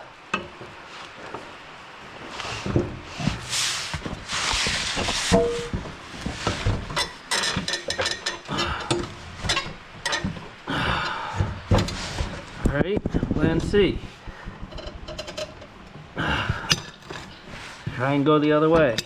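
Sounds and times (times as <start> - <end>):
sharp metal knocks and clanks: 5.3 - 6.0.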